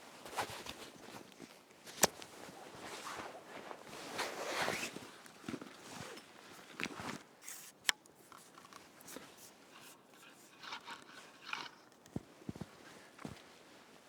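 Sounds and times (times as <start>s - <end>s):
footsteps crunching through snow: 0.1s - 6.1s.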